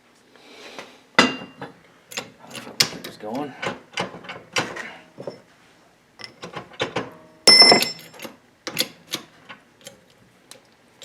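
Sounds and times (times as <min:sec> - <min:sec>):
metal tools clicking and knocking: 0:01.2 - 0:05.4, 0:06.2 - 0:10.0
ringing metal clank: 0:07.5 - 0:08.2.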